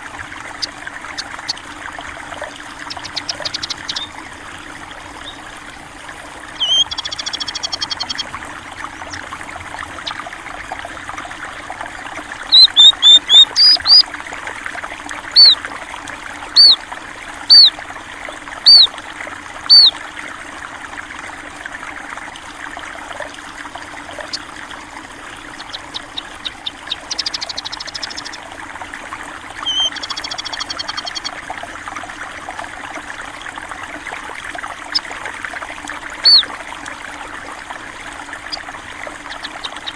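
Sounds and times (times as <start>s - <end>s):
stream water trickling: 0.0s - 39.9s
buzzy bird trills: 0.4s - 4.3s, 6.5s - 10.2s, 11.9s - 14.1s, 15.3s - 15.6s, 16.5s - 16.8s, 17.5s - 17.8s, 18.6s - 19.0s, 19.7s - 20.0s, 23.8s - 24.6s, 25.3s - 28.5s, 29.6s - 31.4s, 36.2s - 36.5s, 38.4s - 39.9s
short arched whistled bird notes: 6.6s - 7.7s.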